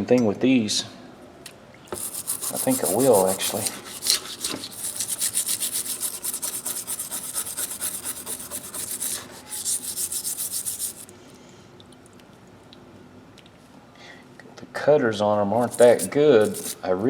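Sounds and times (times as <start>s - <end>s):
scrubbing rusty metal pliers: 1.9s - 11.1s, 15.6s - 16.8s.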